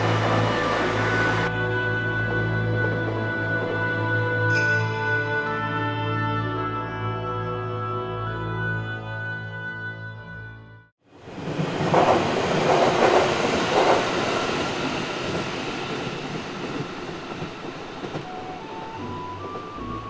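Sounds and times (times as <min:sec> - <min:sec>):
electric train passing: 0:00.0 - 0:05.8, 0:11.1 - 0:20.0
train rattling clatters: 0:11.2 - 0:20.0.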